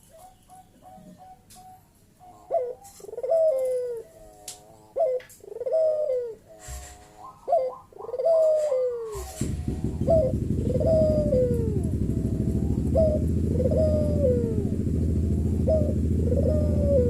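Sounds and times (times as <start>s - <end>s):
dove cooing: 0.0s - 17.0s
low even rumble: 9.2s - 17.0s.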